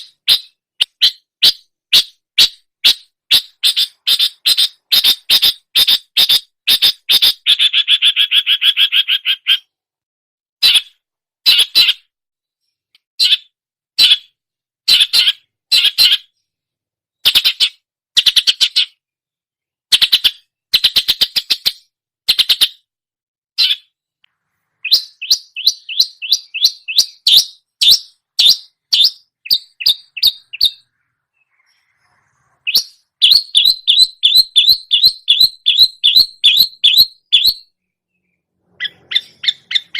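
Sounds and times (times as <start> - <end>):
bird chirps and trills: 0.0 - 9.8, 10.6 - 19.0, 19.9 - 22.9, 23.6 - 39.9.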